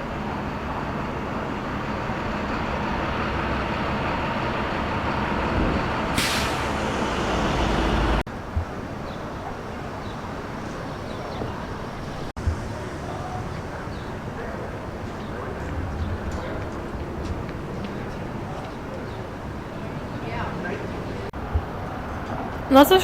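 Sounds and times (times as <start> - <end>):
heavy vehicle engine rumble: 0.0 - 22.6
city street traffic: 0.0 - 23.0
air brake hiss: 6.1 - 8.2.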